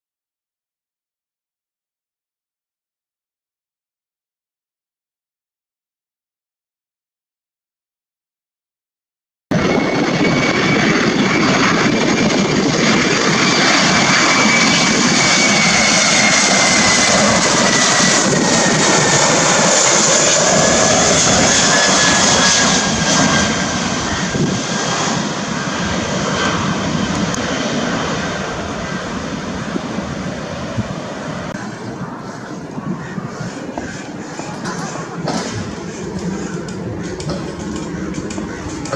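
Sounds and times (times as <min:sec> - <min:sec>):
jet airliner passing overhead: 0:09.5 - 0:38.9.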